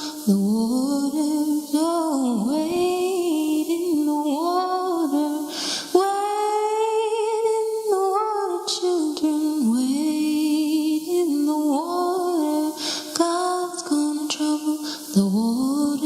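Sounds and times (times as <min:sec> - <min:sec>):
woman singing a cappella: 0:00.0 - 0:16.0
breath: 0:05.4 - 0:06.0, 0:12.7 - 0:13.2, 0:14.8 - 0:15.2.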